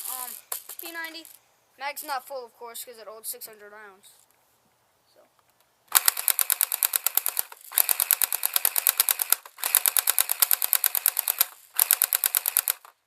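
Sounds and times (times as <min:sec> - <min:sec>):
airsoft gun firing full auto: 0:05.9 - 0:13.0.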